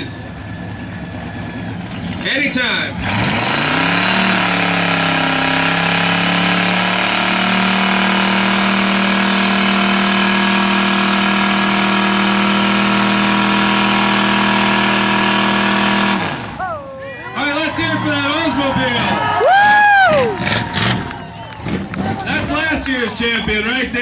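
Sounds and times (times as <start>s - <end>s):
tyres spinning: 0.0s - 16.6s
car engine revving hard: 2.2s - 16.6s, 19.0s - 22.7s.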